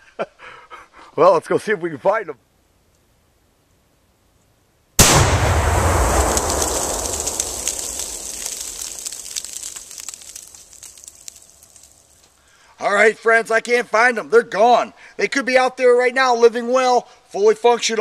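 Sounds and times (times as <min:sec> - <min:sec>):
low rumble: 0:05.0 - 0:09.1
explosive blast: 0:05.0 - 0:11.1
scattered crackles: 0:05.0 - 0:12.5.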